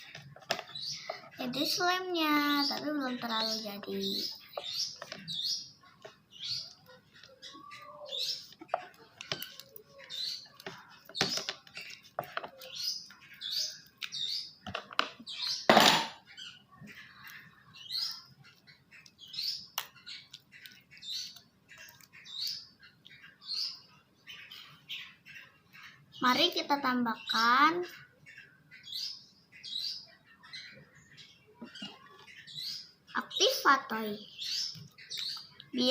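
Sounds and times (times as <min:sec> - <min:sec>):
small bird chirping: 0:00.0 - 0:35.9.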